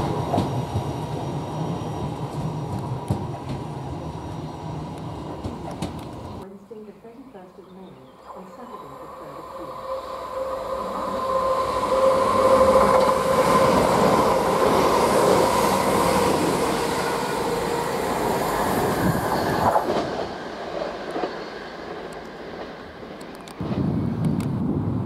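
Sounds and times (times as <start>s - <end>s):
distant train: 0.0s - 25.0s
train passing with engine whine: 0.0s - 25.0s
wheels clattering on rails: 2.0s - 4.0s, 4.8s - 6.4s.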